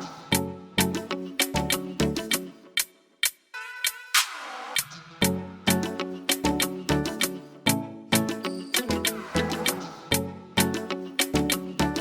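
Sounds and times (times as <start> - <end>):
music with steady drum beat: 1.4 - 12.0.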